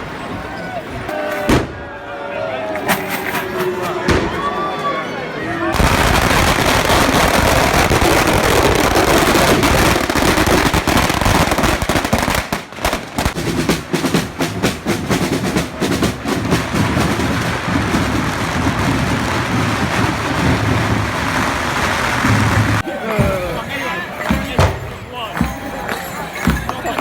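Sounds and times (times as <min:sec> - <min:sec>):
steady noisy din: 0:00.0 - 0:25.6
firecrackers cracking: 0:01.4 - 0:01.9, 0:05.7 - 0:14.7, 0:15.9 - 0:22.8.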